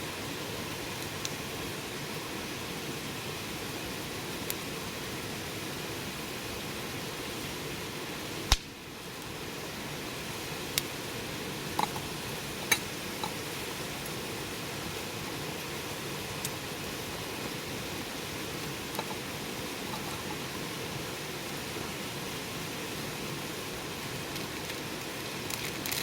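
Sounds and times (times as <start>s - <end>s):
wood fire hissing: 0.0s - 26.0s
crackling wood pops: 8.5s - 8.8s, 11.8s - 14.2s.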